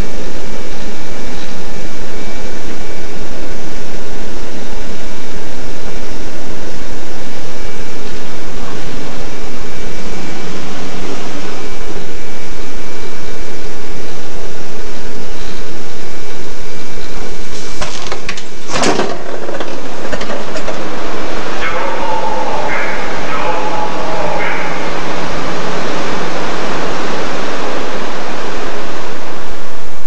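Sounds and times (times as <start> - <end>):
faint high whine: 0.0 - 30.0
train interior rush: 17.1 - 29.4.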